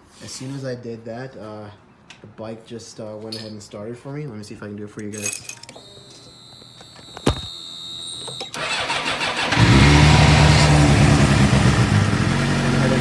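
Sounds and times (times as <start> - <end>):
starter motor cranking: 5.1 - 11.7
motorcycle engine idling: 10.8 - 13.0.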